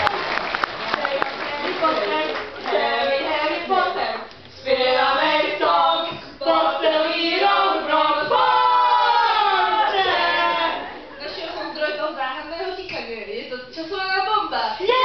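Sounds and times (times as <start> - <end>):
voices chanting together: 0.9 - 11.3.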